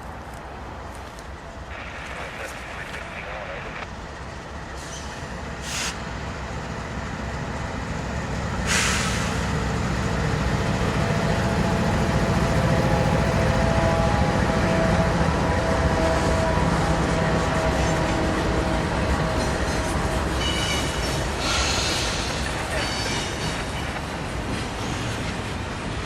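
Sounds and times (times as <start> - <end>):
faint steady train tones: 0.0 - 26.0
freight train rumble: 0.0 - 26.0
burst of hiss: 5.6 - 6.0, 8.7 - 9.4.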